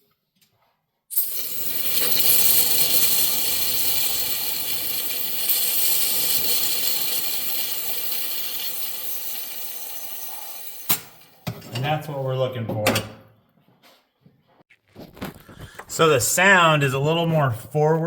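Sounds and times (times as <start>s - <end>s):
compressed air hissing: 1.2s - 9.2s.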